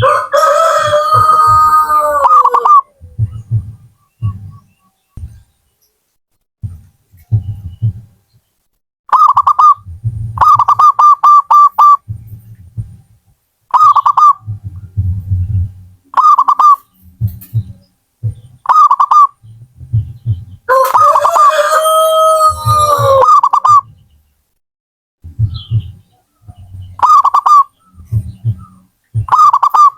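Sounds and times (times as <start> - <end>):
dove cooing: 0.9 - 3.8, 27.0 - 29.9
two-pitch bird call: 18.6 - 19.4, 27.0 - 27.8, 28.6 - 29.9.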